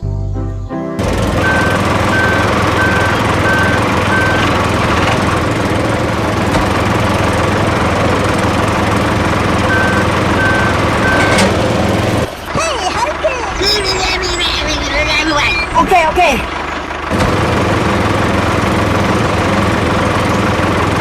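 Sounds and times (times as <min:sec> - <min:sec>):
construction machine engine running: 0:01.0 - 0:21.0
reversing alarm beeping: 0:01.4 - 0:04.6, 0:09.7 - 0:11.5.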